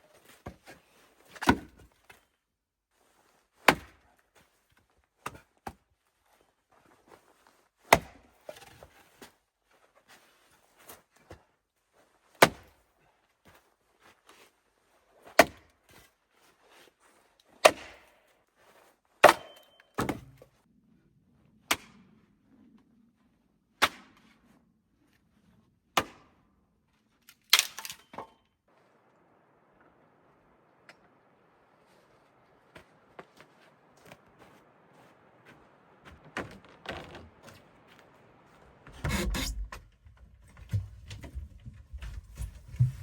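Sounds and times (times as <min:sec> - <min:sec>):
axe chopping wood: 0:01.4 - 0:01.8, 0:03.7 - 0:04.0, 0:07.9 - 0:08.3, 0:12.4 - 0:12.6, 0:15.4 - 0:15.6, 0:17.6 - 0:18.1, 0:19.2 - 0:20.4, 0:26.0 - 0:26.4.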